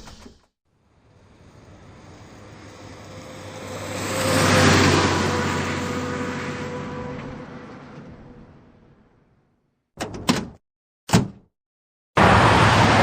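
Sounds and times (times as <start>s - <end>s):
vehicle engine passing by: 1.2s - 8.7s.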